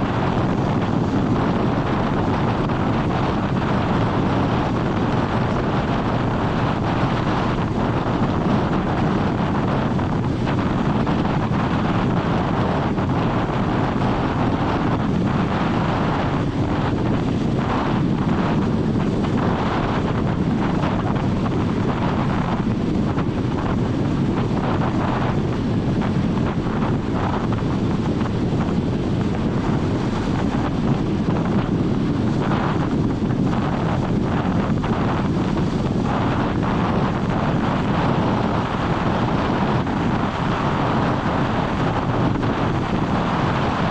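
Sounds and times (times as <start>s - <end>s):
vehicle road noise: 0.0s - 43.9s
wind buffeting microphone: 0.0s - 43.9s.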